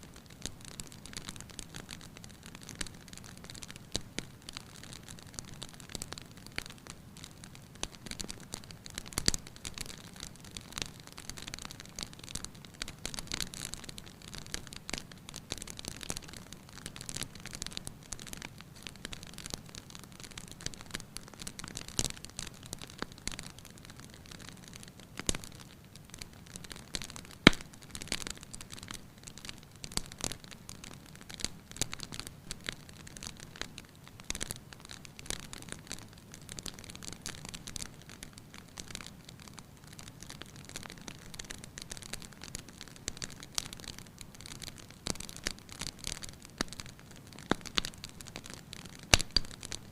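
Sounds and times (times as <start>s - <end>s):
wood fire crackling: 0.0s - 49.9s
fire pops and snaps: 0.2s - 49.9s.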